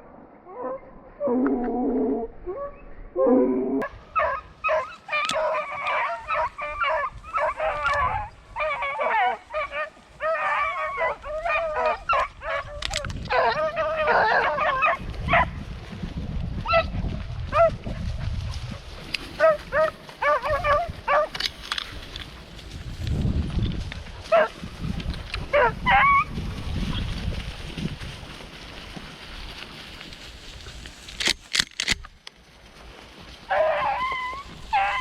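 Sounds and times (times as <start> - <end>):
hounds baying and yipping: 3.8 - 15.6, 16.6 - 22.6, 24.2 - 27.2, 33.5 - 35.0.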